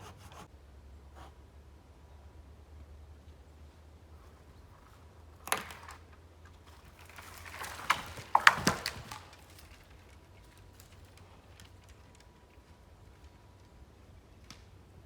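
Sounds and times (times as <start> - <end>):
sharp knocks and clatters: 7.0 - 9.8.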